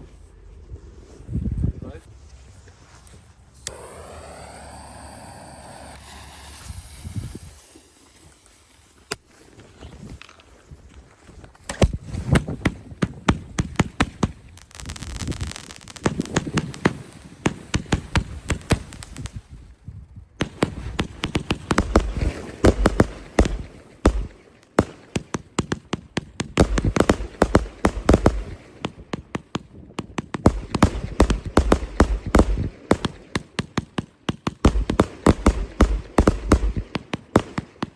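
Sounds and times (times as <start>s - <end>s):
fireworks bangs and crackles: 11.6s - 37.9s
deep fireworks booms: 11.8s - 37.9s.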